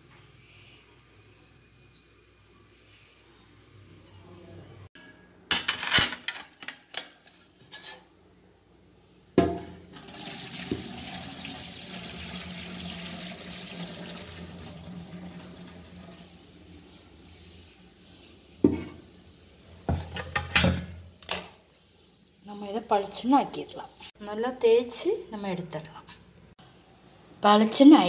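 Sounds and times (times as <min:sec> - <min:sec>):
water gushing into sink: 0:09.9 - 0:16.8
metal pot clattering: 0:19.9 - 0:20.9.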